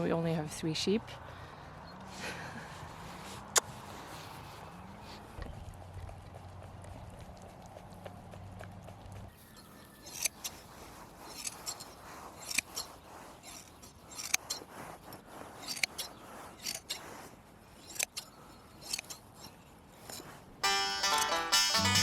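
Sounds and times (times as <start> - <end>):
shears snipping wool: 10.0 - 20.6.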